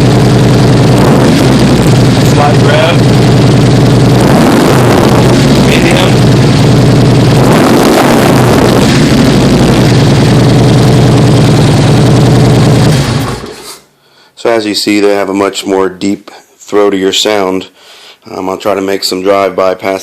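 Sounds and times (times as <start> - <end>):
motorcycle engine revving: 0.0 - 13.7.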